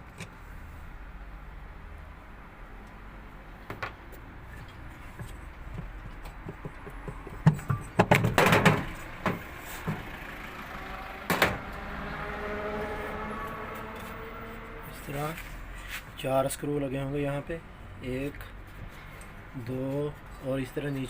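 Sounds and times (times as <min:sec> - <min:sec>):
tool knocks and clatter: 0:05.2 - 0:10.0.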